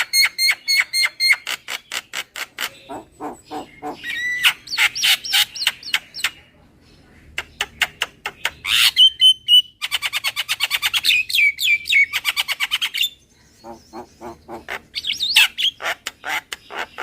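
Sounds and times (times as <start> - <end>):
fast rattling bird call: 0.0 - 5.6, 11.9 - 17.0
bird harsh chattering calls: 0.0 - 6.4, 7.3 - 17.0.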